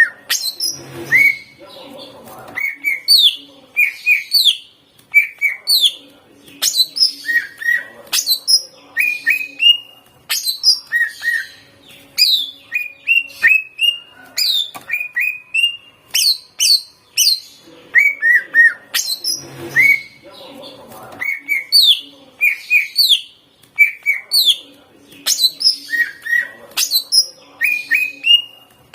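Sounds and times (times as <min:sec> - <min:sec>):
bird singing whistled phrases: 0:00.0 - 0:01.6, 0:06.6 - 0:20.2, 0:25.3 - 0:28.6.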